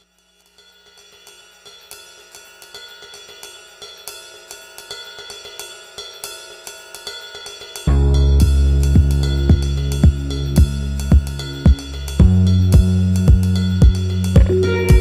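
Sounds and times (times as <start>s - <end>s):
cymbal and hi-hat beat: 0.0s - 15.0s
sustained music tones: 7.9s - 15.0s.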